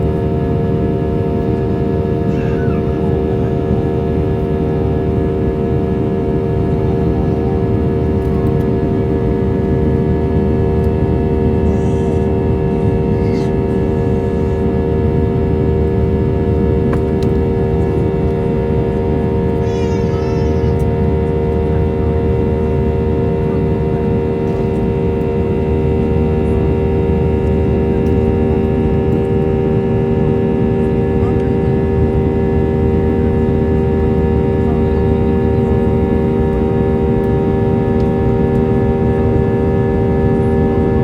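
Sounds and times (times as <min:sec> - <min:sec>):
jet engines running: 0:00.0 - 0:41.0.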